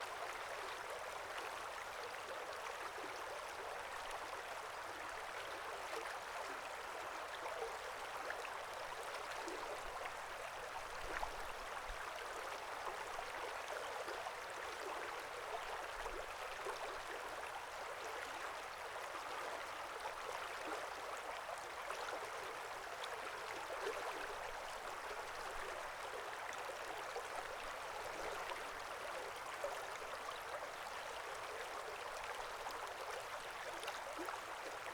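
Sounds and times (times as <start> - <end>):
brook babbling: 0.0 - 34.9.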